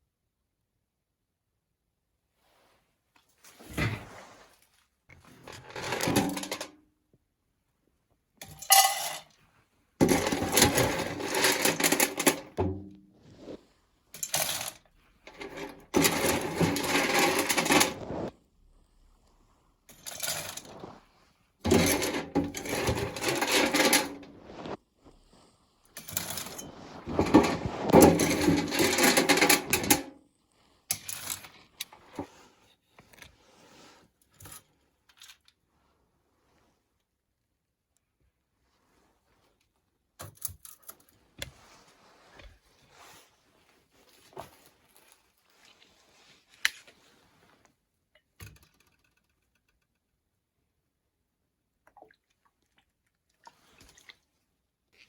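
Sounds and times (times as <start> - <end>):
metal parts clinking and scraping: 5.4 - 6.7, 8.4 - 9.2, 10.0 - 12.6, 14.2 - 18.1, 19.9 - 20.8, 21.7 - 24.3, 26.0 - 30.1.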